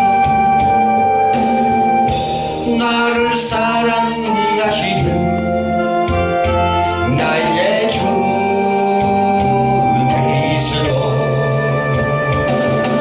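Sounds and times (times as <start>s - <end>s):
electronic organ: 0.0s - 13.0s
gospel singing: 6.1s - 13.0s.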